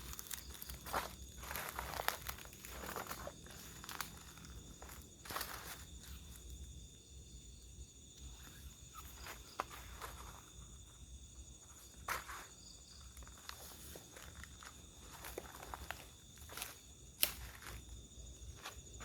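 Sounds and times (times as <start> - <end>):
slow footsteps: 0.0 - 6.6, 11.8 - 19.0
night insects droning: 0.0 - 19.0.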